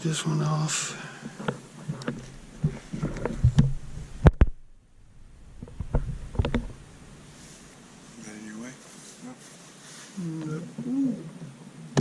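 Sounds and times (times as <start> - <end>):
handling knocks and clicks: 1.4 - 4.6.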